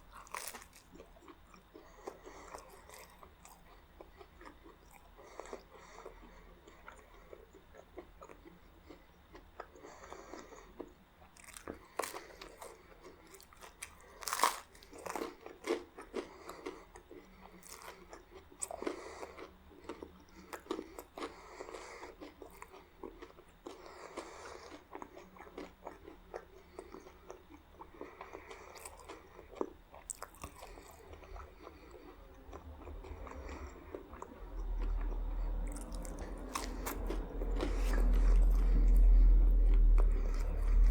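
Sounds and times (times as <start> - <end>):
crunchy bites: 0.0 - 1.2, 13.6 - 16.0
person chewing food: 0.0 - 40.9.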